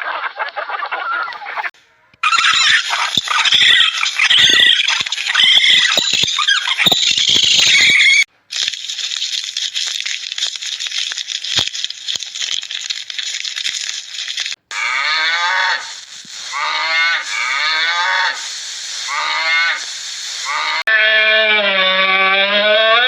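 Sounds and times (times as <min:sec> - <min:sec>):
crackling hiss: 0:01.3 - 0:20.9
cattle mooing: 0:14.7 - 0:18.5, 0:19.1 - 0:19.9.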